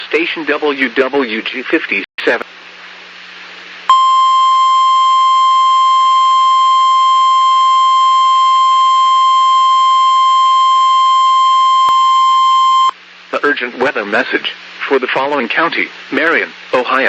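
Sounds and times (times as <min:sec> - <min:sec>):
loud steady alarm tone: 0:03.9 - 0:12.9.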